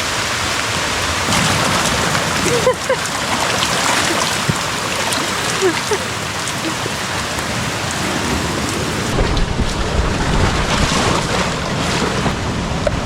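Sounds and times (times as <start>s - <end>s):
steady rain falling: 0.0s - 13.0s
heavy low rumble: 9.0s - 13.0s.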